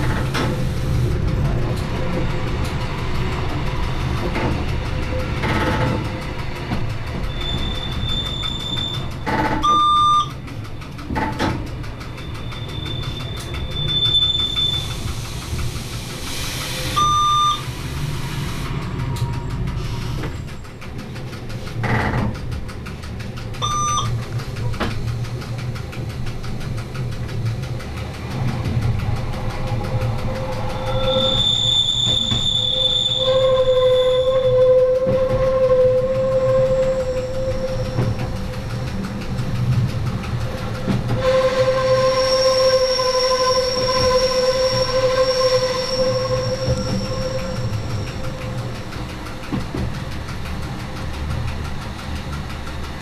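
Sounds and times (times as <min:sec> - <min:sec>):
train running rumble: 0:00.0 - 0:53.0
wheel squeal: 0:07.2 - 0:10.3, 0:12.2 - 0:15.2, 0:30.2 - 0:38.6, 0:41.0 - 0:48.8
short beeps: 0:09.6 - 0:10.3, 0:17.0 - 0:17.6, 0:23.6 - 0:24.1.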